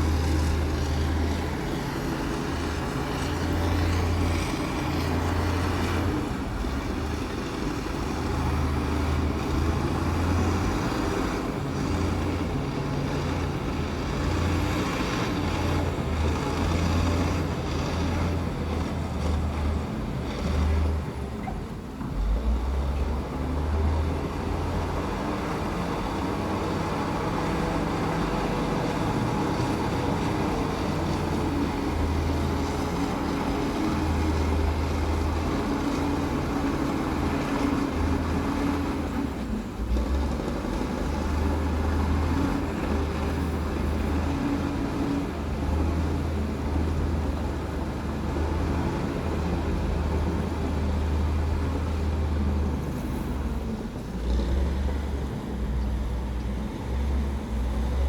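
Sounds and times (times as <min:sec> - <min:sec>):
bulldozer diesel engine rumbling: 0:00.0 - 0:58.0.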